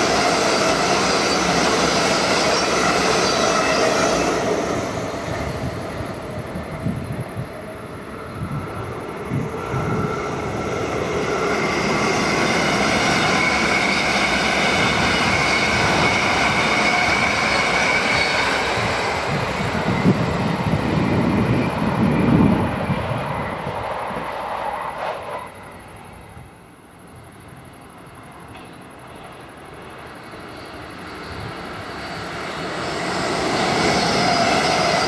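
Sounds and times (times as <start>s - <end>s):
train passing: 0.0s - 35.0s.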